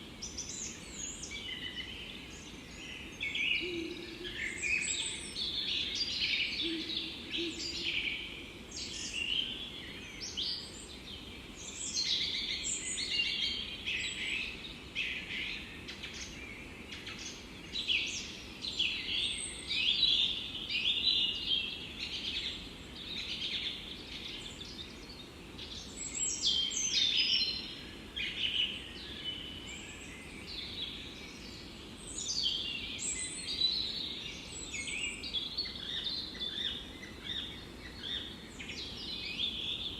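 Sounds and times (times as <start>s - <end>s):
faint steady background hiss: 0.0s - 39.9s
songbirds chirping and trilling: 0.0s - 39.9s.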